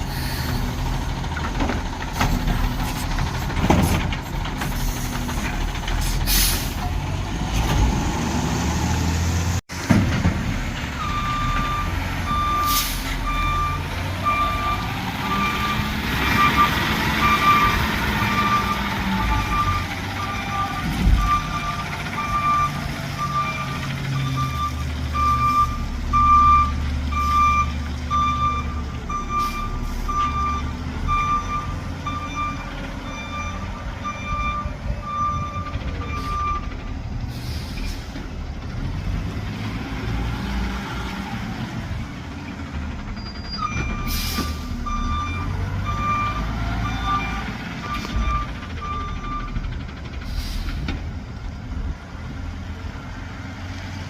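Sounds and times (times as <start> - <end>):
truck backup alarm beeping: 10.9 - 37.1, 43.0 - 49.8.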